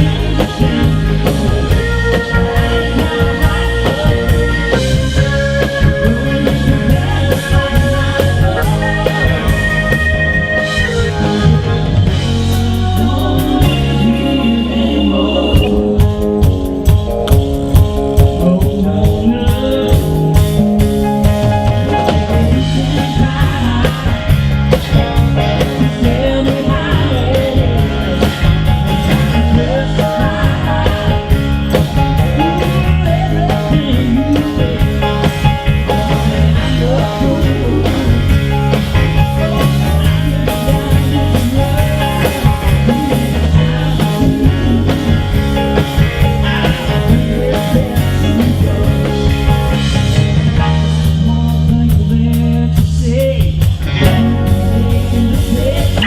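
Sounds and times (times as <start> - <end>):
drums: 0.0 - 56.0
electric guitar: 0.0 - 56.0
person singing: 0.0 - 56.0.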